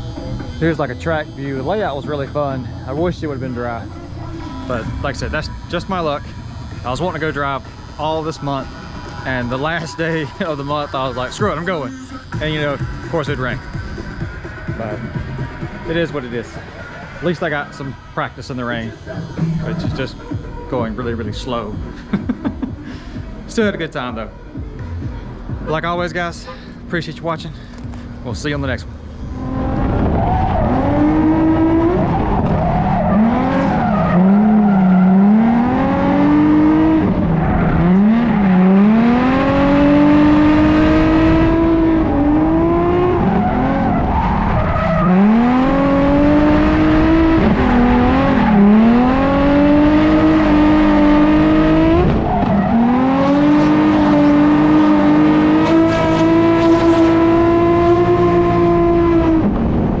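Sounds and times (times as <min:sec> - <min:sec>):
car engine revving hard: 0:29.2 - 1:00.0.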